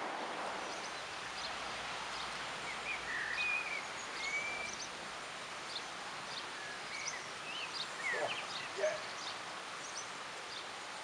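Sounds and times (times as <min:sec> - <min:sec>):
outdoor hiss: 0:00.0 - 0:11.0
small birds chirping: 0:05.6 - 0:10.8.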